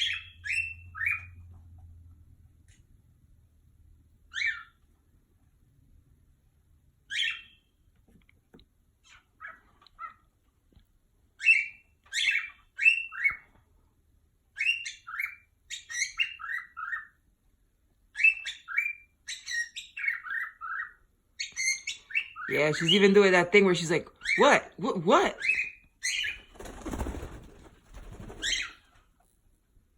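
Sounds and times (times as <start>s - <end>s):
bird chirping: 0.0s - 1.6s, 4.2s - 4.9s, 7.0s - 7.9s, 11.4s - 13.6s, 14.5s - 17.3s, 18.1s - 27.0s.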